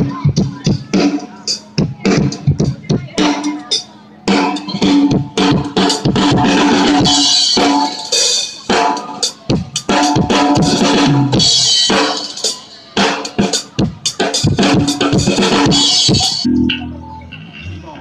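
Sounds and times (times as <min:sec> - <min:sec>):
band music with drum kit: 0:00.0 - 0:17.2.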